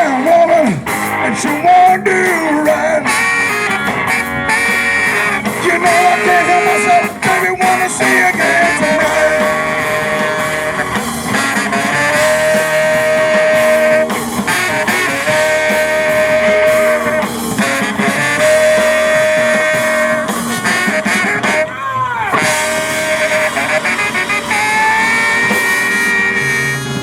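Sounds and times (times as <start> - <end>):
blues-rock band playing: 0.0 - 27.0
lead instrument long notes: 0.0 - 27.0.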